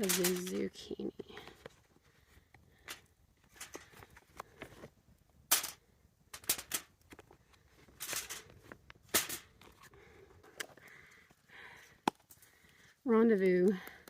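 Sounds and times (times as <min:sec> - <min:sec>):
aluminum foil crinkling: 0:00.0 - 0:01.8, 0:02.7 - 0:04.9, 0:06.4 - 0:11.3.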